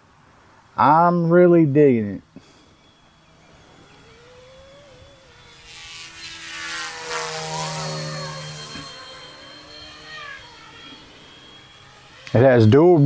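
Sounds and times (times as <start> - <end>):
toy helicopter rotors whining: 2.2 - 13.0.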